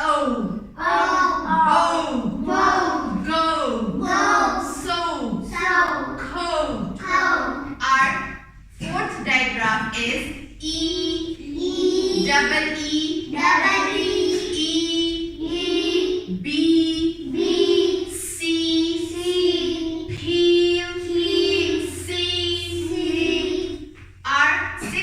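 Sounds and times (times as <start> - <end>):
children chanting: 0.8 - 6.2, 6.9 - 7.8, 10.9 - 20.3, 21.0 - 23.9.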